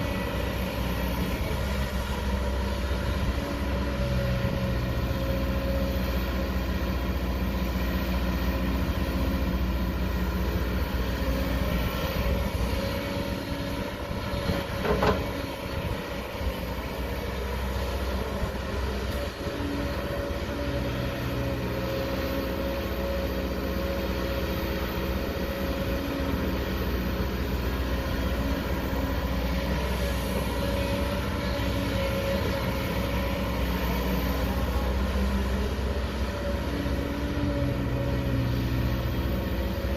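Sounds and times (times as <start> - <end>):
heavy diesel machinery droning: 0.0 - 39.9.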